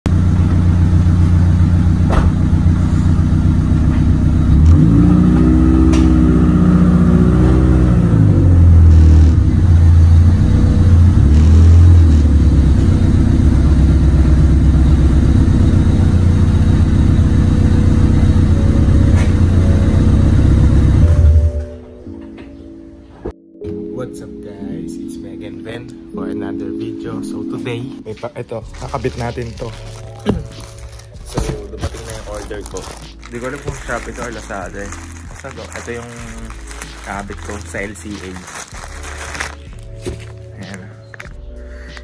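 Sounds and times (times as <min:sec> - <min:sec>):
car engine idling and revving: 0:00.1 - 0:21.6.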